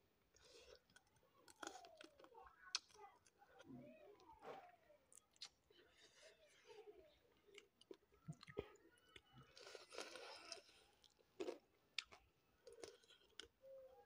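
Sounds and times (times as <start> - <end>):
person chewing food: 0.3 - 3.6, 5.1 - 6.7, 7.4 - 13.6.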